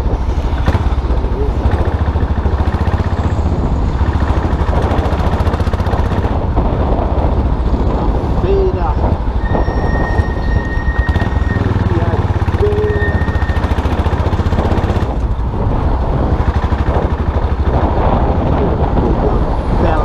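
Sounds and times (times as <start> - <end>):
motorcycle engine rumbling: 0.0 - 20.0
wind and road noise: 0.0 - 20.0
thin high squeal: 12.6 - 13.7.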